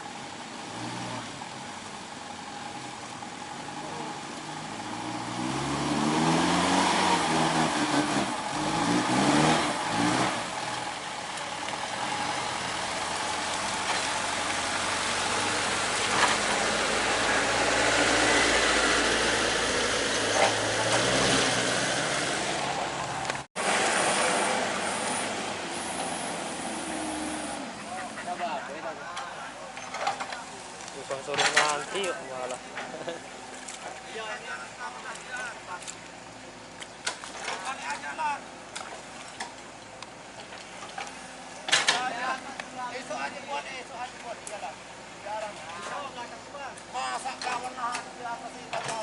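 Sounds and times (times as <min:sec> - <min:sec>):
heavy diesel engine revving: 0:03.6 - 0:28.5.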